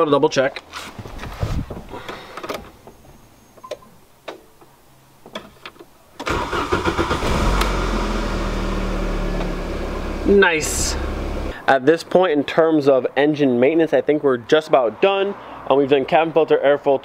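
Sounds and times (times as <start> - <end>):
car engine cranking: 6.2 - 11.6
car engine idling: 6.4 - 11.6.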